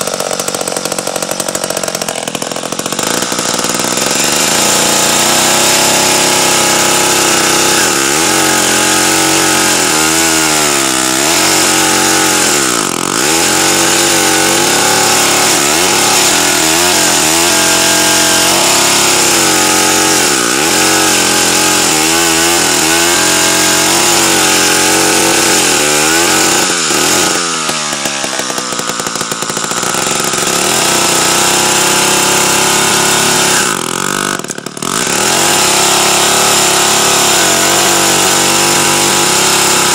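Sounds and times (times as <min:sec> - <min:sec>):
chainsaw running hard: 0:00.0 - 0:39.9.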